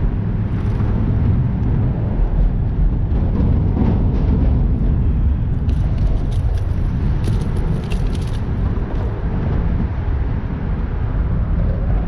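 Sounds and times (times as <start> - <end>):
low rumbling noise: 0.0 - 12.0
faint clicks and rattles: 5.5 - 9.2.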